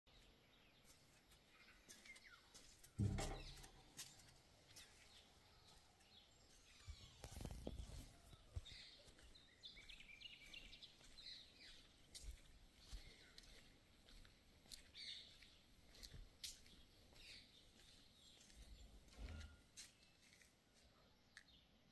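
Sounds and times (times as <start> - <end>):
small birds chirping: 0.1 - 21.9
low thump: 3.0 - 3.7.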